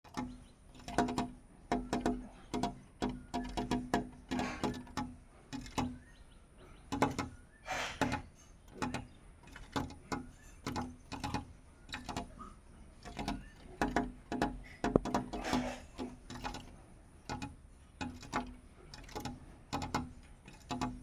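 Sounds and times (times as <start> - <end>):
bird tapping on glass: 0.1 - 21.0
faint bird chirp: 5.7 - 16.3.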